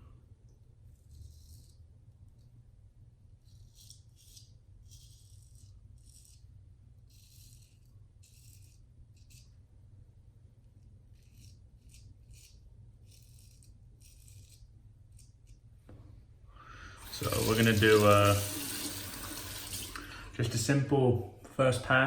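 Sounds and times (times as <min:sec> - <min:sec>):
razor scraping stubble: 0:03.4 - 0:09.7, 0:10.8 - 0:15.7, 0:17.0 - 0:20.0.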